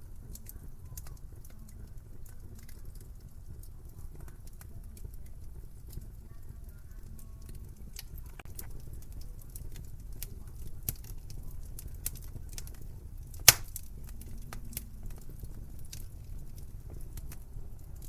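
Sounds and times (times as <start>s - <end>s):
wood fire crackling: 0.0s - 18.0s
loud fire pop: 13.4s - 13.8s.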